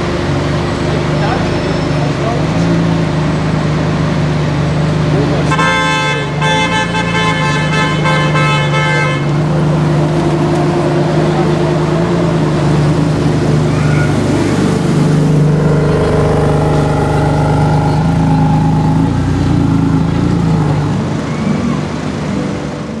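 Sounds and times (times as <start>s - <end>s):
car engine idling: 0.0s - 23.0s
car horn: 0.0s - 23.0s.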